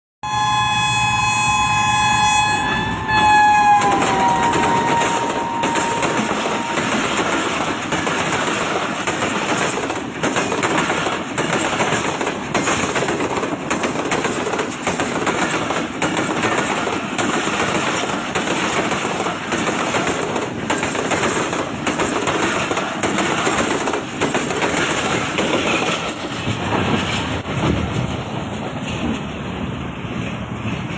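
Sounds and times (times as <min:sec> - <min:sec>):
train horn: 0:00.2 - 0:07.2
train rumble: 0:00.3 - 0:30.9
train wheels clattering on rails: 0:03.7 - 0:30.9.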